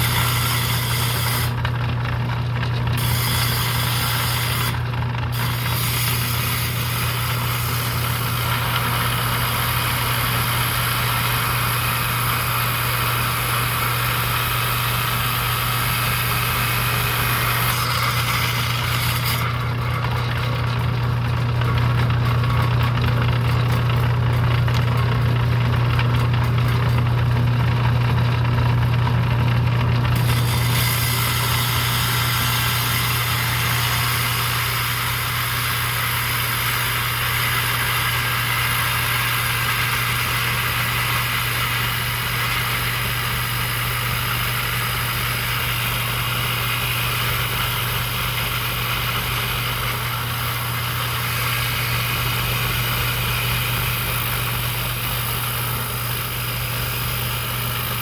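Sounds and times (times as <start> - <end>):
saw blade hissing cutting stone: 0.0 - 1.6, 3.0 - 19.7, 30.2 - 43.8, 44.4 - 58.0
saw motor humming: 0.0 - 58.0.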